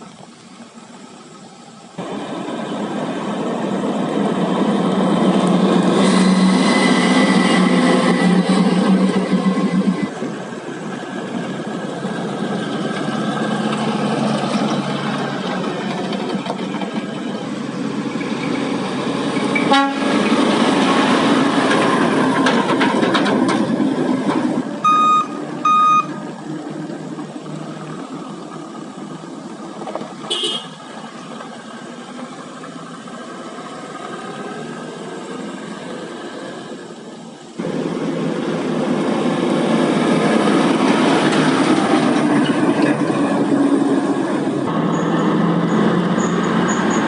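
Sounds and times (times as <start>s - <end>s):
truck diesel engines running: 0.0s - 47.0s
short beeps: 24.8s - 26.2s.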